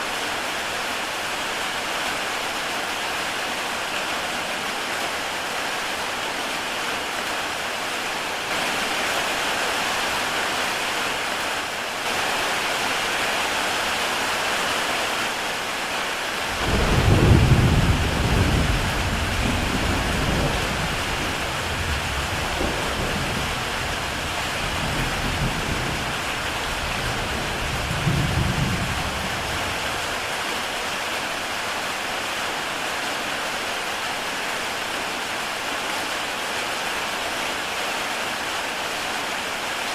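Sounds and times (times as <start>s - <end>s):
heavy rain on a tile roof: 0.0s - 39.9s
thunder rolling: 16.5s - 26.4s, 27.0s - 30.0s.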